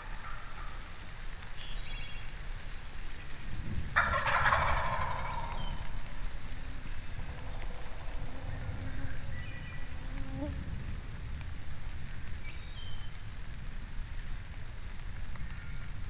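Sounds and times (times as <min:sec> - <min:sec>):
turkey gobbling: 0:00.0 - 0:00.7, 0:04.0 - 0:06.0.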